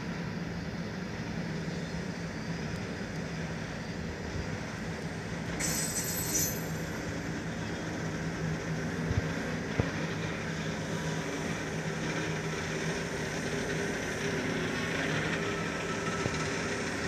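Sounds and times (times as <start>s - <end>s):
freight train rumbling on rails: 0.0s - 17.0s.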